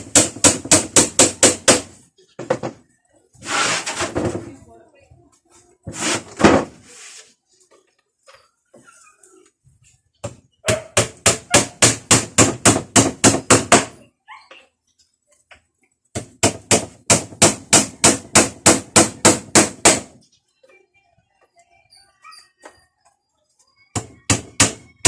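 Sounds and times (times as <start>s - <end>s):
hammer driving nails into wood: 0.0s - 2.0s, 10.7s - 14.0s, 16.1s - 20.2s.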